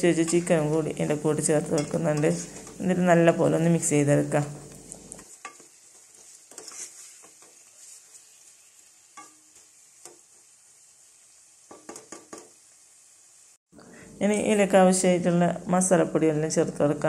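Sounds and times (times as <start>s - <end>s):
spatula scraping and knocking pot: 0.0s - 3.0s, 4.3s - 8.2s, 9.2s - 10.3s
food sizzling in a pot: 0.0s - 15.4s.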